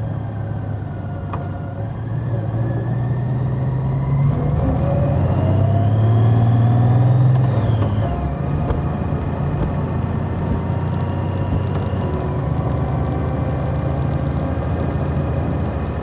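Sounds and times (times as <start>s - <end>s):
wind and road noise: 0.0s - 16.0s
motorcycle engine revving: 4.1s - 13.4s.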